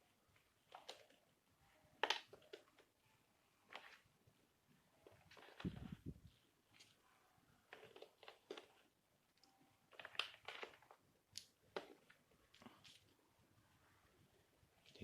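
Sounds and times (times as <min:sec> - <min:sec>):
board game pieces rustling and clicking: 0:00.3 - 0:01.3, 0:02.0 - 0:03.0, 0:03.7 - 0:04.1, 0:05.0 - 0:07.0, 0:07.7 - 0:13.2.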